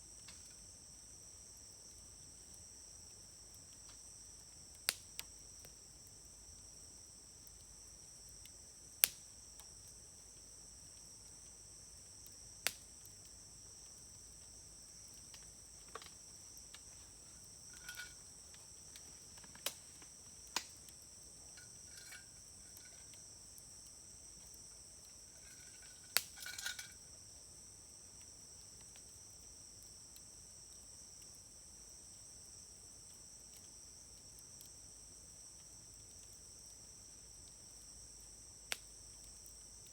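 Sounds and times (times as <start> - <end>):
insects chirping: 0.0 - 39.9
wood fire crackling: 1.5 - 29.3.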